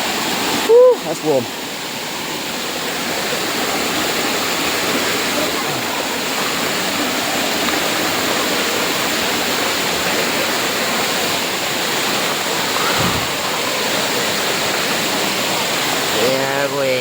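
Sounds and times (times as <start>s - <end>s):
spring water rushing: 0.0s - 17.0s
dull bump: 12.8s - 13.6s.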